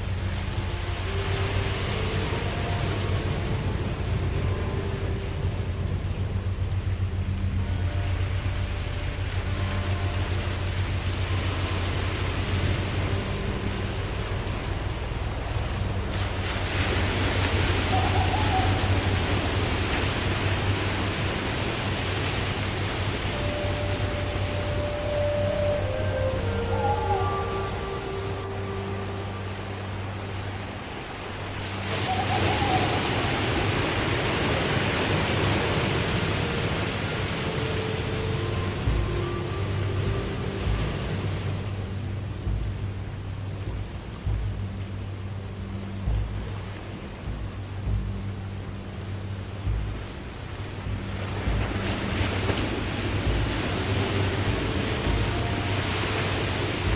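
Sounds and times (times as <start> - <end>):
waterfall roaring: 0.0 - 56.9.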